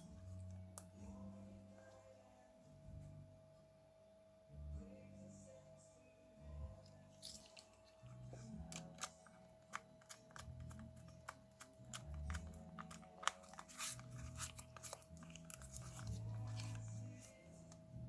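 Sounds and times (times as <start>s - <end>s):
faint background music: 0.0s - 18.0s.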